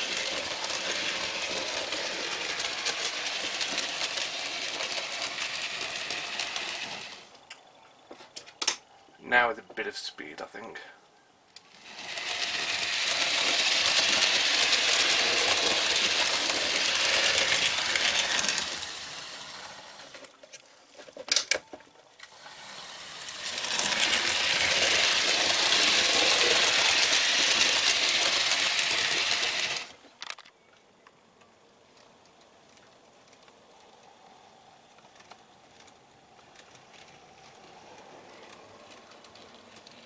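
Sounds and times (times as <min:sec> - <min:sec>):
model train passing: 0:00.0 - 0:07.5, 0:11.6 - 0:20.3, 0:22.2 - 0:30.0, 0:33.4 - 0:40.0.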